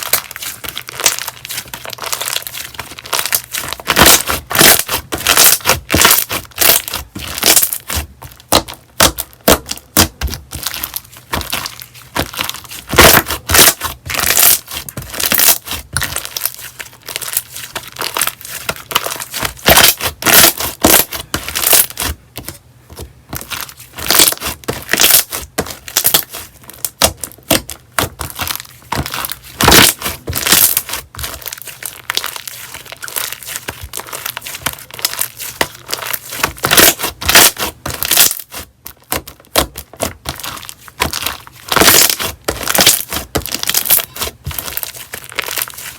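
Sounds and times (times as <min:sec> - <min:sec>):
slime squished by hand crackling: 0:23.4 - 0:45.9.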